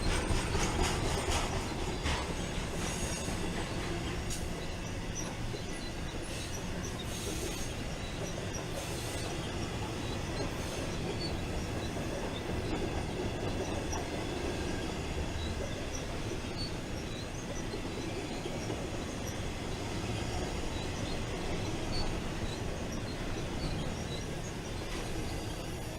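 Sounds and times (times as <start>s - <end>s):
faint wheel squeaks: 0.0s - 25.9s
train wheels rumbling on rails: 0.0s - 25.9s.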